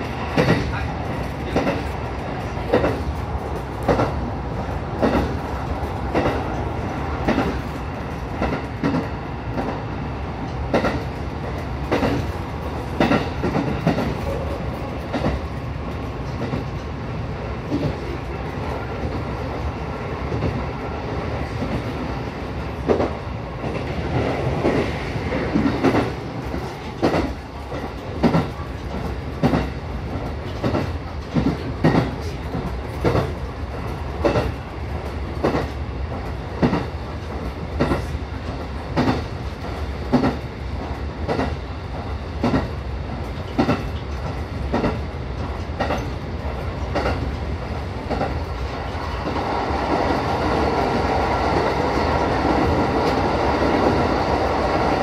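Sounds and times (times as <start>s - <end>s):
train rumble: 0.0s - 55.0s
wheels clacking over rail joints: 43.3s - 47.4s.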